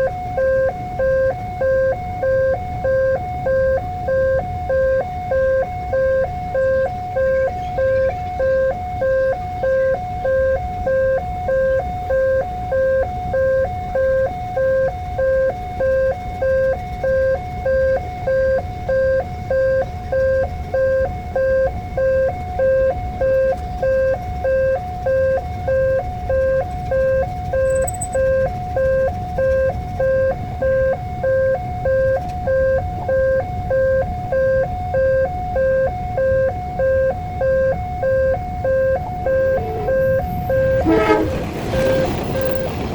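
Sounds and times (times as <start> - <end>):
low traffic rumble: 0.0 - 42.9
level crossing two-tone bell: 27.7 - 28.2.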